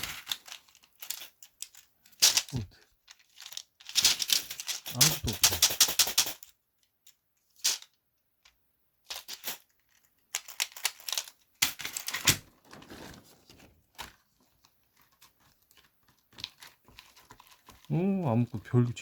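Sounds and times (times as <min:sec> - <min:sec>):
membrane sheets crinkling: 0:00.0 - 0:05.7, 0:09.8 - 0:19.0
plastic keyboard parts clattering: 0:00.0 - 0:06.5, 0:09.1 - 0:17.9.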